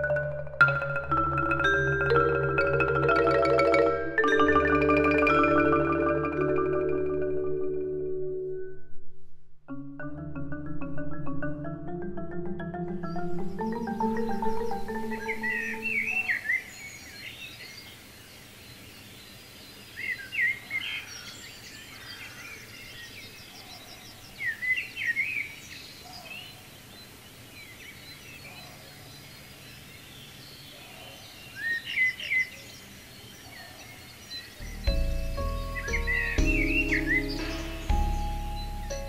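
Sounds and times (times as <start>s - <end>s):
faint background hiss: 0.0s - 39.0s
songbird warbling: 10.1s - 18.0s, 19.9s - 39.0s.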